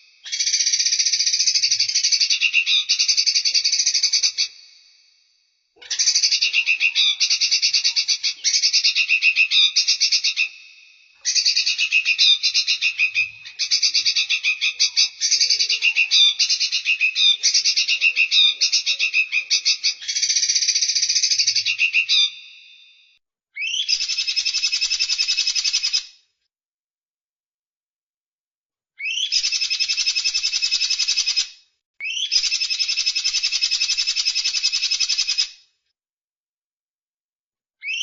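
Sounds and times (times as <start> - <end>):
songbird trilling: 0.2 - 4.6, 5.8 - 22.6, 29.0 - 31.4, 32.0 - 35.5.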